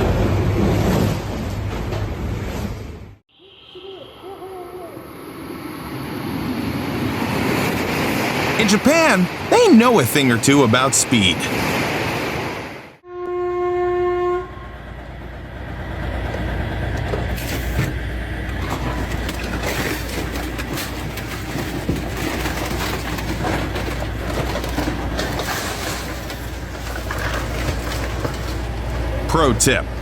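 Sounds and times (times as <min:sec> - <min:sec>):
high-speed train rumbling: 0:13.7 - 0:30.0.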